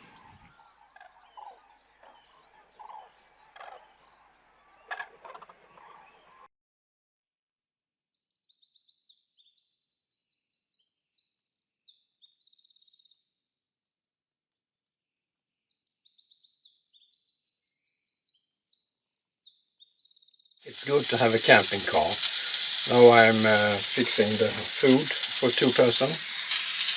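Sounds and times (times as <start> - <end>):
songbird singing trills: 19.4 - 26.9.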